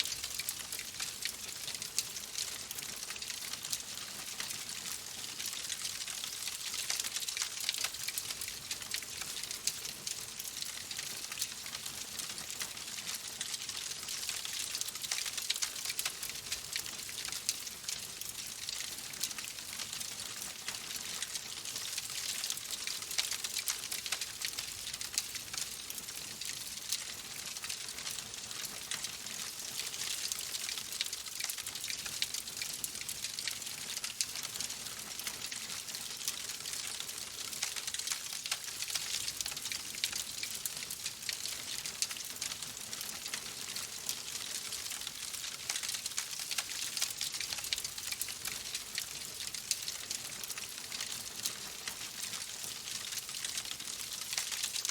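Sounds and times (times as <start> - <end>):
wood fire crackling: 0.0 - 54.9.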